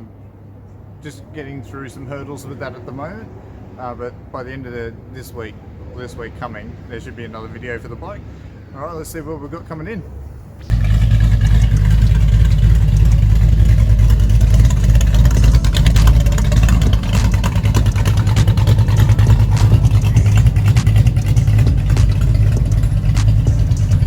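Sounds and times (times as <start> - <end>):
car engine rumbling and crackling: 10.3 - 24.0.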